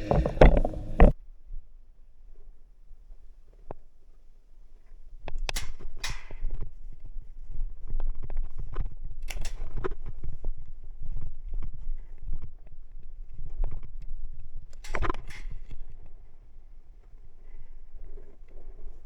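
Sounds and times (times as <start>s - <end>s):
low rumble: 0.0s - 1.2s.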